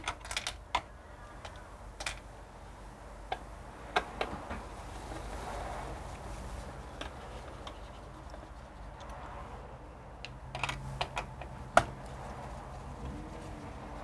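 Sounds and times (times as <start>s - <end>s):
computer parts clicking and tapping: 0.0s - 2.2s.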